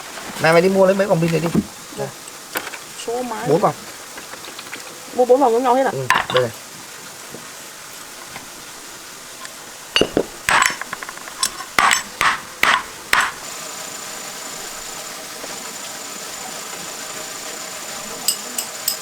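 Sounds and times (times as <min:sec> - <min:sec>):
metal tools clinking: 0:06.1 - 0:06.6, 0:09.4 - 0:13.4, 0:18.2 - 0:19.0.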